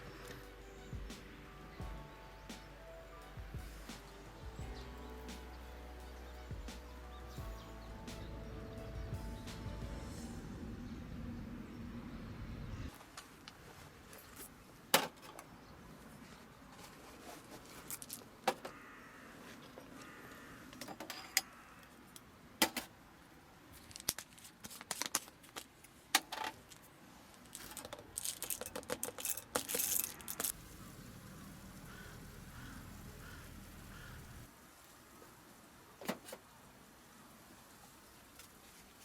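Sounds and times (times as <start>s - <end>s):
clattering and crinkling: 16.3s - 18.7s, 23.8s - 30.6s
small hard objects clinking: 17.7s - 18.3s, 27.4s - 30.8s.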